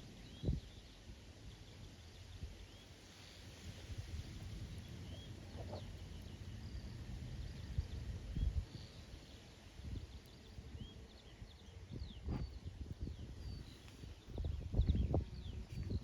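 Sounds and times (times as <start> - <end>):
small birds chirping: 4.8 - 16.0
wind buffeting microphone: 9.8 - 16.0.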